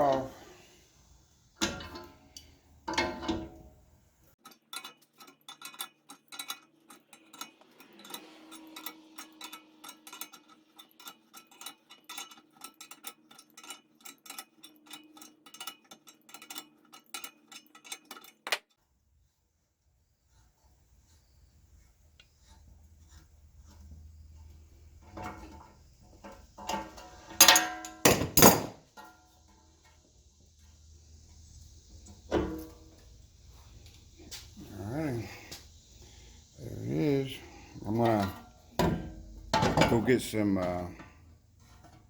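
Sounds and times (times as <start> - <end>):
metal clanks: 1.6 - 3.8, 24.9 - 30.0, 37.2 - 42.0.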